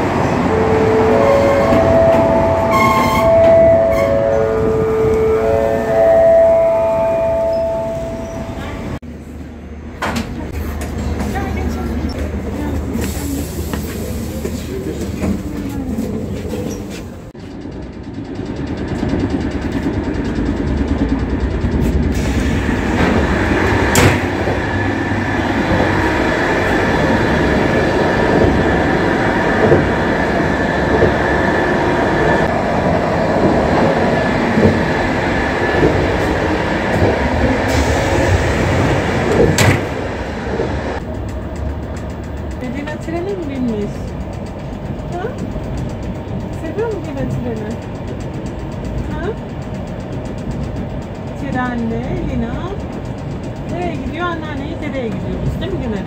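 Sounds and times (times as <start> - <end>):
train rumble and rattle: 0.0 - 56.0.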